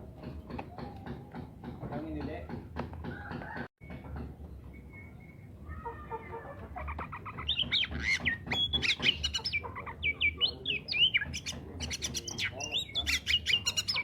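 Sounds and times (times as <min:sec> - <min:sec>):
bird song whistles and chirps: 0:04.6 - 0:05.8, 0:07.2 - 0:14.0.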